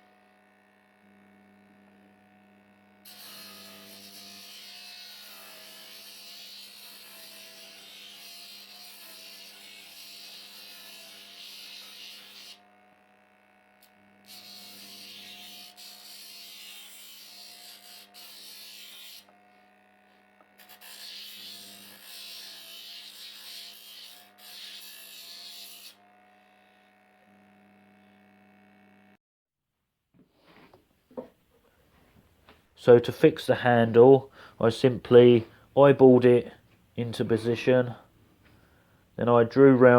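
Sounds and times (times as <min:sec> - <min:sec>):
disc sander humming: 0:00.0 - 0:06.0, 0:11.2 - 0:21.0, 0:25.3 - 0:29.2.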